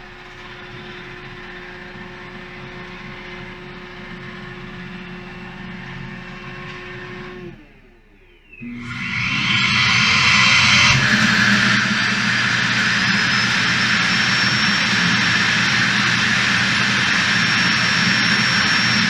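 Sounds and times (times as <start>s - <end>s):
suction motor whooshing: 8.6s - 19.0s.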